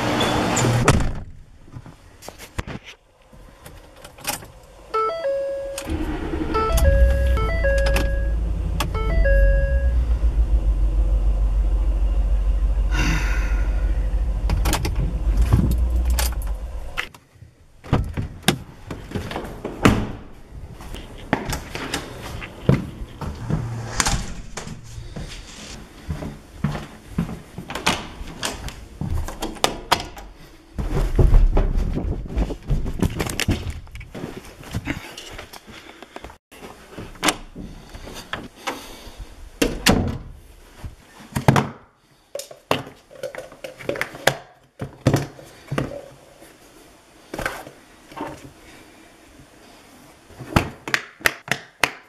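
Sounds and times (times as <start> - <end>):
car engine starting and running: 4.0 - 17.1, 20.9 - 25.8
two-note chime dinging: 5.0 - 10.3.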